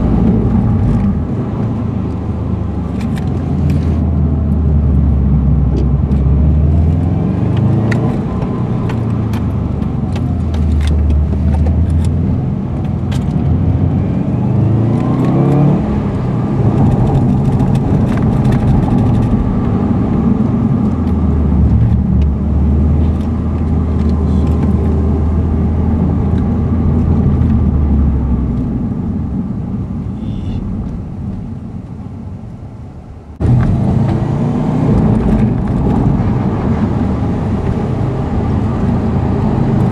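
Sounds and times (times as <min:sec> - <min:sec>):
car engine: 0:00.0 - 0:39.9.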